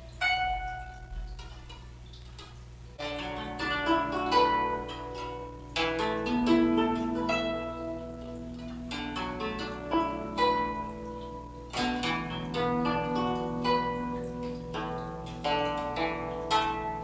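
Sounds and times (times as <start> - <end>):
zither plucked notes: 0.0 - 17.0.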